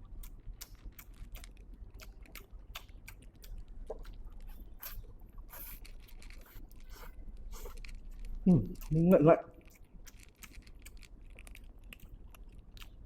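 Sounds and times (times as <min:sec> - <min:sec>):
person chewing and slurping noodles: 0:00.0 - 0:13.0
wet mouth smacks and clicks: 0:00.2 - 0:05.8.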